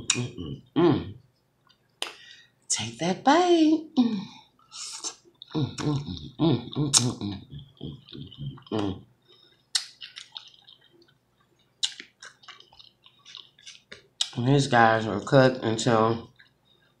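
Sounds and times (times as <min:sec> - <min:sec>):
hummed mouth noises: 0:00.0 - 0:01.4, 0:04.8 - 0:13.5
person chewing noodles: 0:04.5 - 0:14.4, 0:15.8 - 0:17.0.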